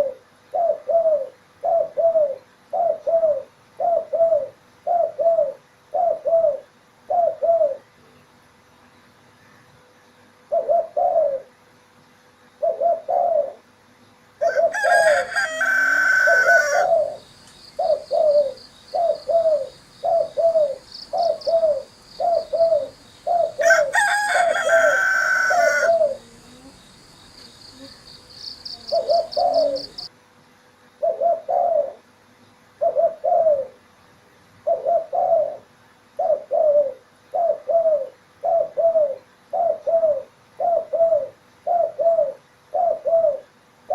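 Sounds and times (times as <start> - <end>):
dove cooing: 0.0 - 7.9, 10.5 - 11.5, 12.6 - 13.7, 14.4 - 30.1, 31.0 - 32.1, 32.8 - 33.8, 34.6 - 43.9
rooster crowing: 14.4 - 17.2, 22.8 - 26.2
small bird trilling: 27.8 - 30.1.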